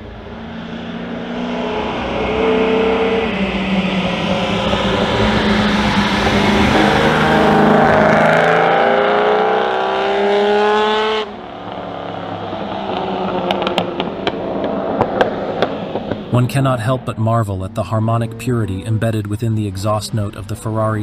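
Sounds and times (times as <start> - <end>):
car engine accelerating: 0.0 - 21.0
exhaust pops: 11.6 - 17.5.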